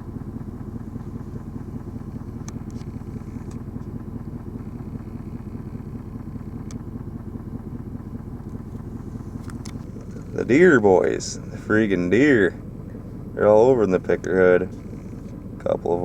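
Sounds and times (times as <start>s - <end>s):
engine idling: 0.0s - 16.0s
faint clicks: 2.4s - 3.9s, 6.6s - 6.8s.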